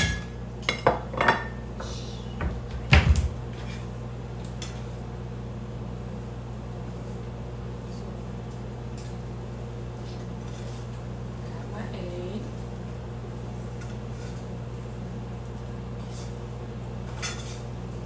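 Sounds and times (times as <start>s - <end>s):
kitchen knocks and clatters: 0.0s - 1.6s, 2.4s - 3.9s, 17.0s - 17.7s
microwave oven humming: 0.0s - 18.0s.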